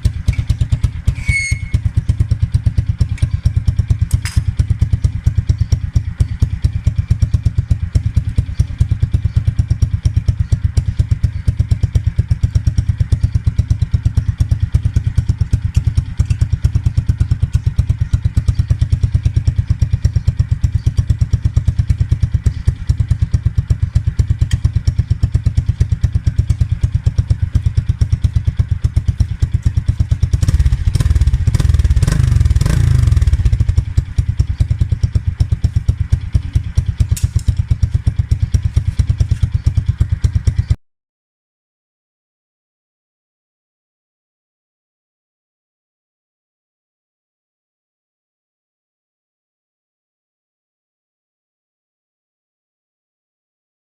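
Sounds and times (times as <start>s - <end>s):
motorcycle engine idling: 0.0s - 40.8s
motorcycle engine revving: 0.0s - 40.8s.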